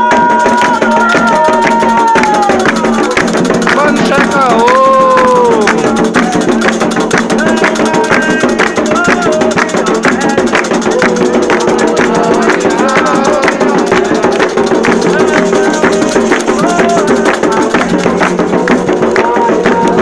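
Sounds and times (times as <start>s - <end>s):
hand drums and rattles: 0.0s - 20.0s
group of voices chanting: 7.4s - 18.2s.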